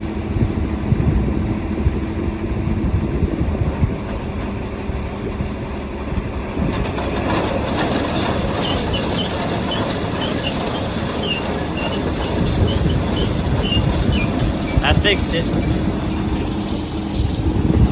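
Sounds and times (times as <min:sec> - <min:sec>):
tractor diesel engine running: 0:00.0 - 0:17.9
machinery rattle: 0:03.6 - 0:17.9.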